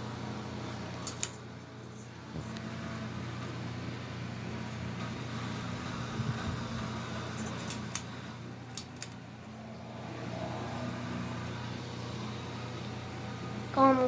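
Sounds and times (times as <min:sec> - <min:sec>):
ceiling fan hum and air: 0:00.0 - 0:14.0.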